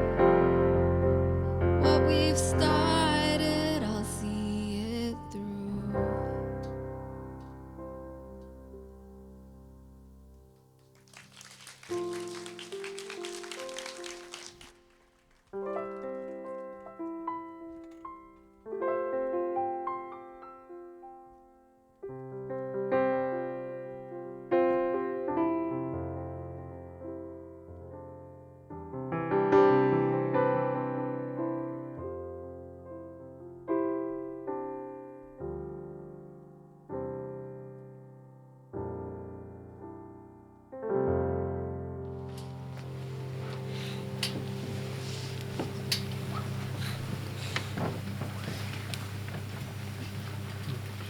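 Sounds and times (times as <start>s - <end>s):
deep piano bass notes: 0.0s - 10.7s, 38.9s - 51.0s
solo piano chords: 0.0s - 11.2s, 11.8s - 51.0s.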